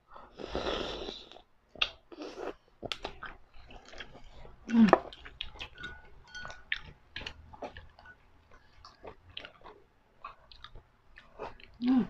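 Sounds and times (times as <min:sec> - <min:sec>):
chewing noodles: 0:00.6 - 0:11.8
mouth clicks and smacks: 0:01.3 - 0:02.0, 0:02.8 - 0:04.2.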